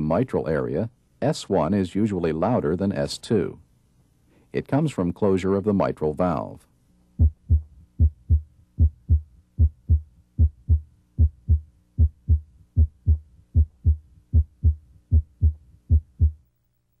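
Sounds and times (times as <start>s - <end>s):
heartbeat through stethoscope: 7.2s - 16.4s.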